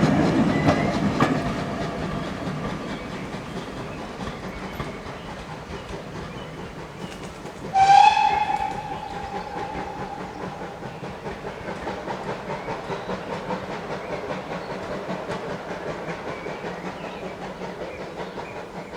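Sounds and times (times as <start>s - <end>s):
train wheels clattering over joints: 0.0s - 18.9s
steam locomotive whistle: 7.7s - 11.7s.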